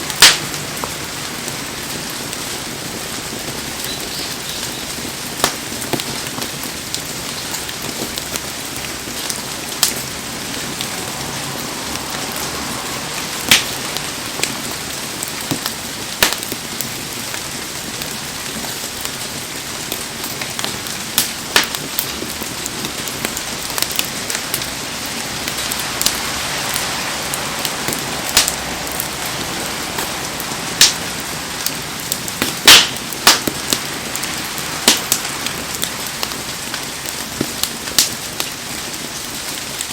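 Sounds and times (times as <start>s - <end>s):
heavy rain falling: 0.0s - 39.9s
sharp pops: 5.4s - 6.6s, 32.3s - 33.9s, 34.8s - 35.2s.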